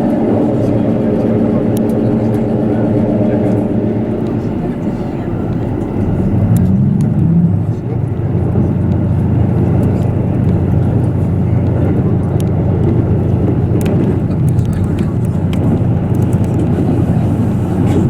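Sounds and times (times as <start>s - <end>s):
diesel railcar rumbling: 0.0s - 18.0s
faint clicks: 5.4s - 7.3s.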